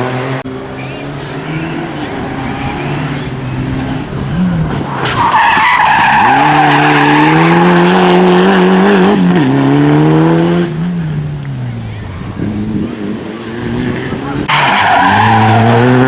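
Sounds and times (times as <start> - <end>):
rally car engine revving: 0.0 - 16.0
tyre squeal: 0.6 - 8.0.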